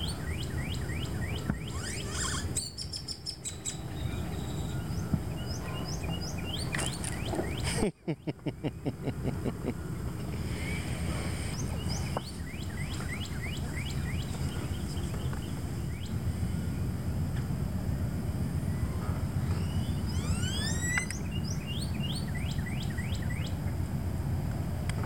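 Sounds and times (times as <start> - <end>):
rising whistled bird calls: 0.0 - 7.8, 10.5 - 16.2, 18.7 - 23.6
birds chirping: 0.0 - 16.9, 18.7 - 23.6
steady low rumble: 2.8 - 20.4, 21.1 - 25.0.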